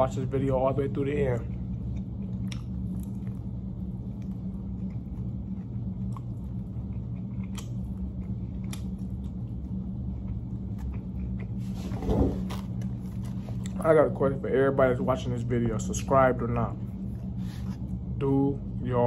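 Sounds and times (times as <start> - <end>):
low room hum: 0.0 - 19.0
person chewing and biting: 1.5 - 13.8.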